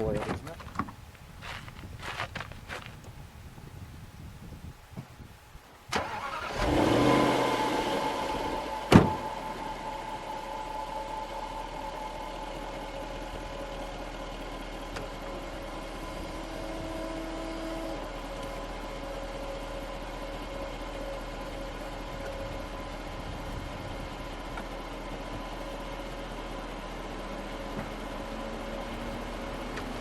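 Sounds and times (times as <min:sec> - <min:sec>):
car engine idling: 0:05.9 - 0:30.0.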